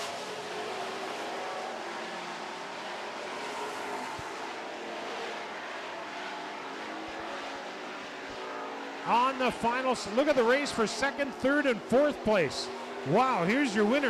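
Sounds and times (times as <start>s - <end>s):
racing truck engines: 0.0s - 14.0s.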